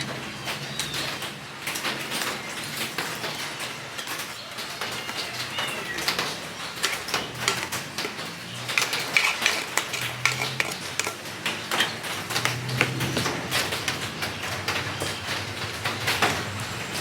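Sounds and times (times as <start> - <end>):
small sharp clicks and clinks: 6.8 - 14.0.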